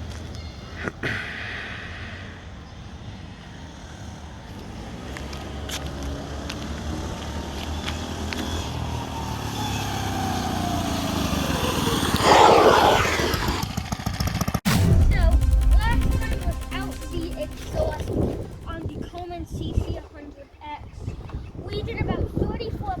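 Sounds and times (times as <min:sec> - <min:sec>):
mini bike engine accelerating: 0:03.5 - 0:14.6
loud rush of noise: 0:14.7 - 0:20.1.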